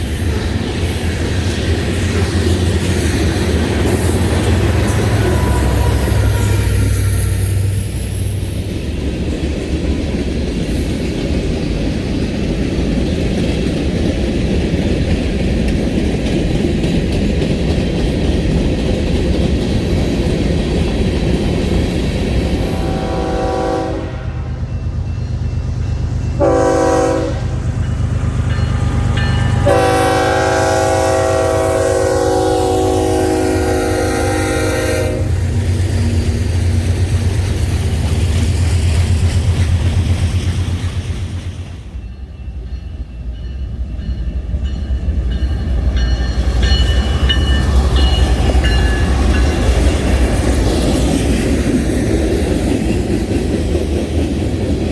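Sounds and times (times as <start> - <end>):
train rumbling past: 0.0 - 54.9
locomotive air horn: 4.6 - 7.7, 22.6 - 24.7, 26.4 - 27.6, 29.0 - 35.4.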